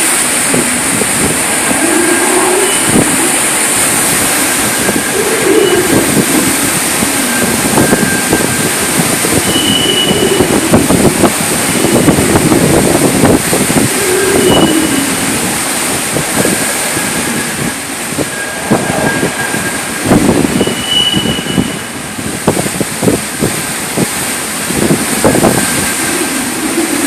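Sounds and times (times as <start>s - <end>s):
strong wind howling in gusts: 0.0s - 27.0s.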